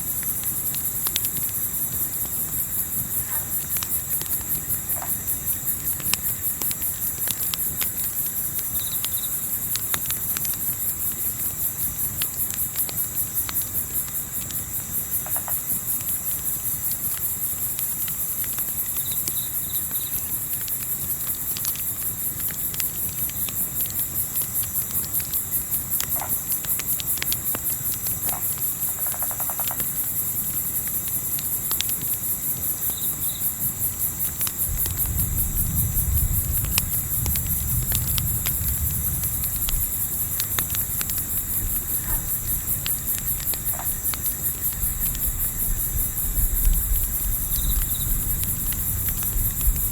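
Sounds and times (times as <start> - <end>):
campfire crackling: 0.0 - 49.9
crickets chirping: 0.0 - 49.9
low wind rumble: 34.6 - 49.9.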